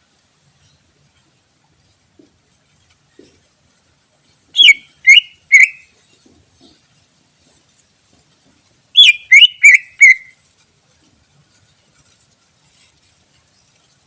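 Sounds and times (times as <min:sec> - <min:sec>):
bird whistling descending notes: 0:04.6 - 0:05.8, 0:09.0 - 0:10.3.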